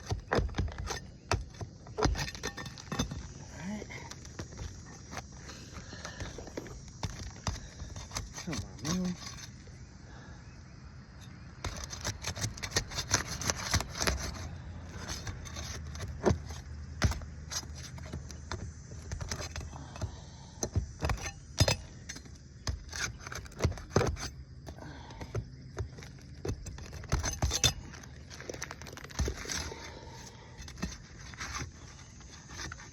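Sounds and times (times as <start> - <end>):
hand tools scraping shingles: 0.0 - 9.8, 11.6 - 32.9.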